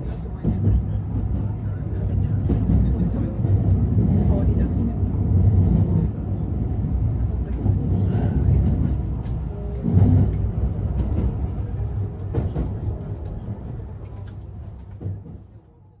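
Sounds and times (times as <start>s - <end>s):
low train carriage rumble: 0.0s - 16.0s.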